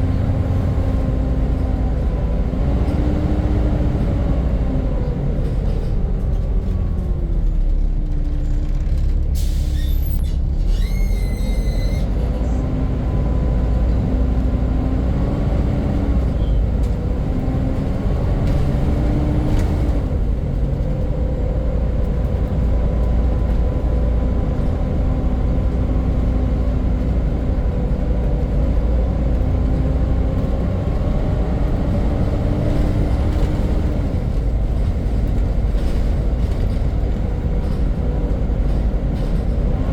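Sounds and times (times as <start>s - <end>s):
bus diesel engine running: 0.0s - 39.9s
air brakes hiss and squeal: 9.4s - 12.2s.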